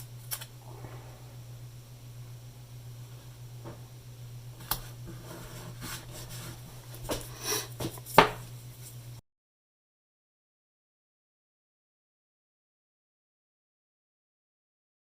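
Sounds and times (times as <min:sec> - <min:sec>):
tape handling clicks: 0:00.0 - 0:00.5
steady low hum: 0:00.0 - 0:09.2.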